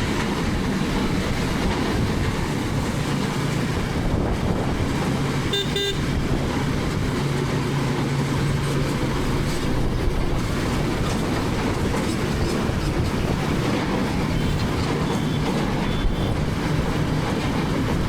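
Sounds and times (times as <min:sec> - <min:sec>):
road noise: 0:00.0 - 0:18.0
vehicle horn toots: 0:05.5 - 0:06.2.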